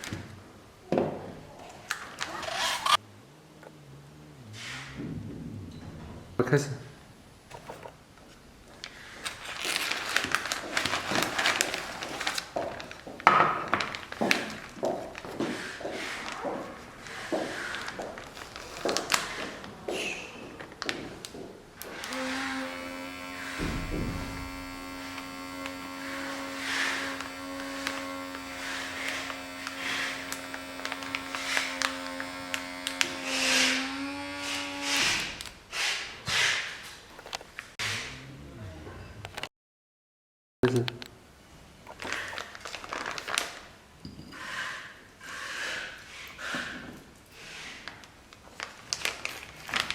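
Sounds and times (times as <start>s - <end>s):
plastic bag crinkling: 8.7s - 22.3s, 23.0s - 33.3s, 41.8s - 43.8s, 48.3s - 49.9s
vacuum sealer pump humming: 21.8s - 35.6s
knocks: 23.5s - 24.9s.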